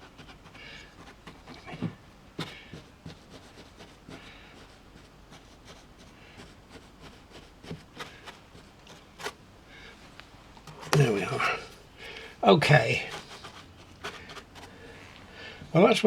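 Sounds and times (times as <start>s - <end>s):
paper rubbing and rustling: 6.7s - 9.4s, 10.6s - 15.6s.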